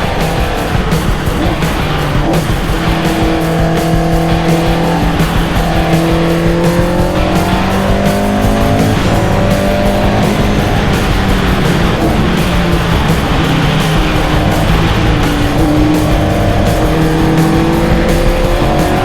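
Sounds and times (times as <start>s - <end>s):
music: 0.0s - 19.0s
race car engine revving: 0.0s - 19.0s.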